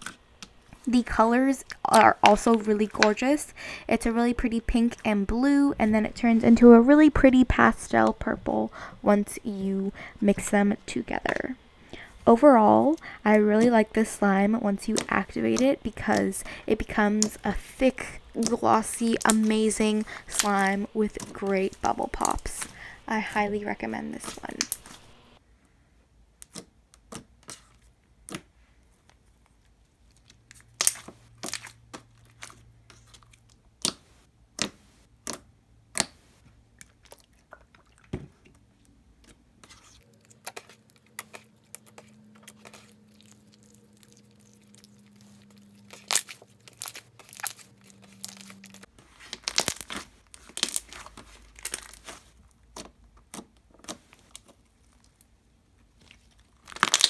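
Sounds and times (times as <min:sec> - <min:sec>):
slime squeezed with bubble pops: 0:56.6 - 0:57.0.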